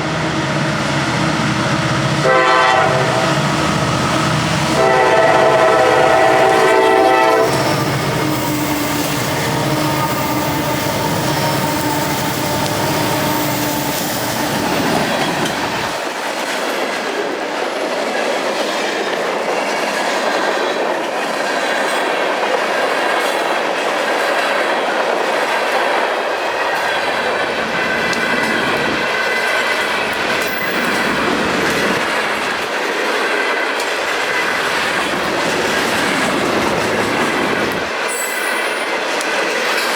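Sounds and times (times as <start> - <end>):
freight train rolling past: 0.0 - 39.9
locomotive air horn: 2.2 - 14.1.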